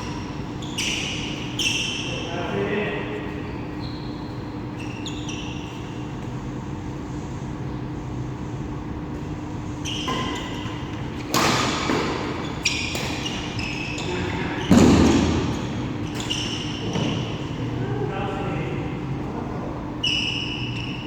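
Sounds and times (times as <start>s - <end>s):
shoes squeaking on court floor: 0.0s - 21.0s
steady hum: 0.0s - 21.0s
racket hitting shuttlecock: 10.0s - 17.3s.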